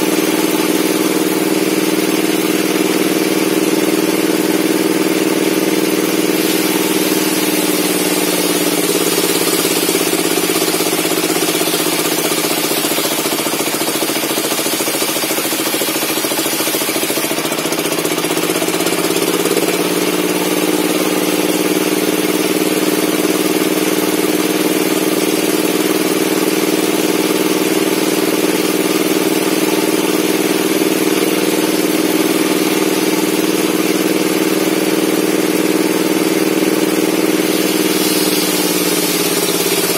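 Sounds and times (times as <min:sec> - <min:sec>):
circular saw running: 0:00.0 - 0:39.9
saw blade cutting log hiss: 0:06.2 - 0:17.2, 0:37.3 - 0:39.9.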